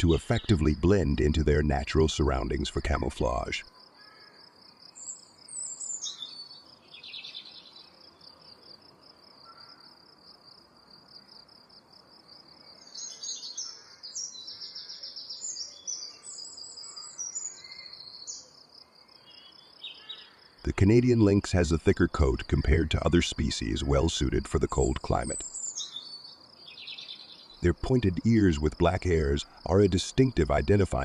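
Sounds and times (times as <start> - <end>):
birds chirping: 0.0 - 3.6, 12.7 - 18.5, 19.2 - 31.0.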